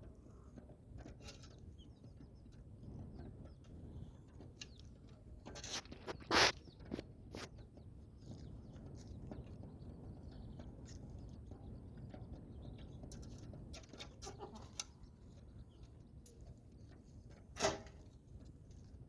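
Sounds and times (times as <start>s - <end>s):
small clicks and scratches: 0.0s - 9.6s, 10.6s - 19.0s
chickens calling: 0.0s - 17.4s.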